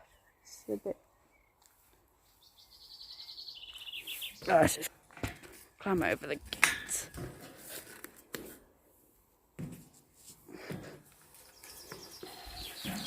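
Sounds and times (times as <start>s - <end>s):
faint scuffs and knocks: 9.5s - 12.2s.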